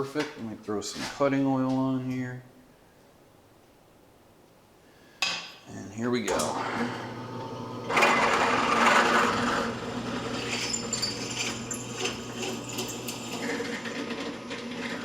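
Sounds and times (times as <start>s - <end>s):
power drill drilling metal: 6.4s - 15.0s.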